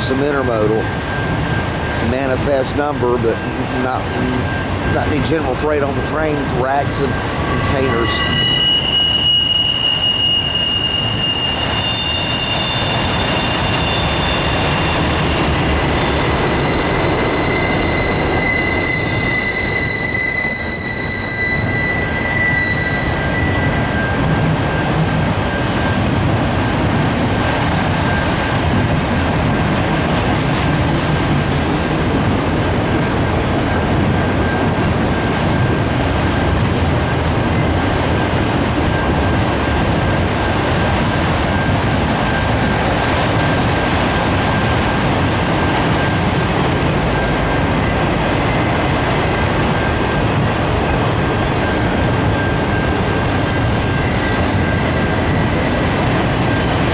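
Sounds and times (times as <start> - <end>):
freight train wheels rumbling: 0.0 - 56.9
high-pitched wheel squeal: 6.3 - 24.8.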